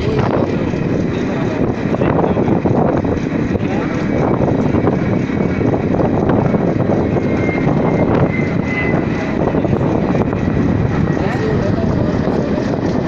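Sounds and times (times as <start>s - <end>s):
train coach rumbling and rattling: 0.0s - 13.0s.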